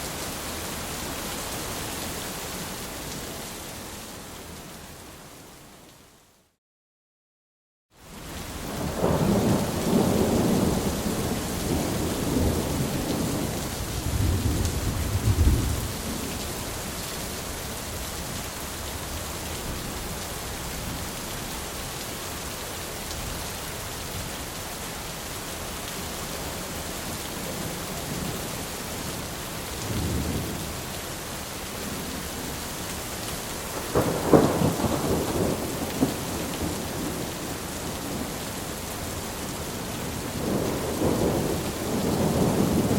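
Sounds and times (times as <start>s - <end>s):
steady rain: 0.0s - 6.6s, 7.9s - 42.9s
thunder rumbling: 8.8s - 16.3s, 33.7s - 38.4s, 40.3s - 42.9s.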